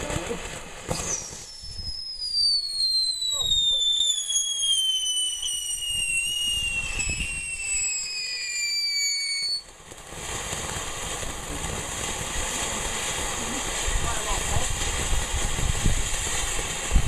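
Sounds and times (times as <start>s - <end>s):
firework whistle: 0.0s - 11.2s
steady hiss: 9.5s - 17.0s.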